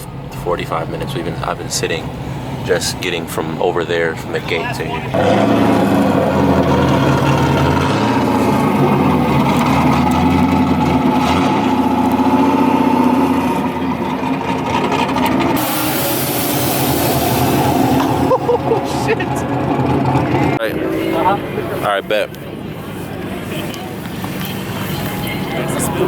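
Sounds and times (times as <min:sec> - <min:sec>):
car engine running: 0:00.0 - 0:26.0
hiss: 0:15.6 - 0:18.2.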